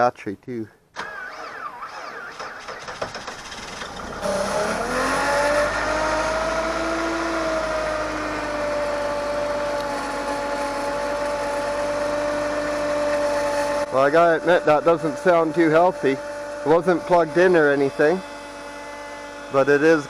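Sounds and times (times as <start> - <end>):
car engine fast idle: 1.0 - 5.0
starter motor cranking: 1.0 - 8.9.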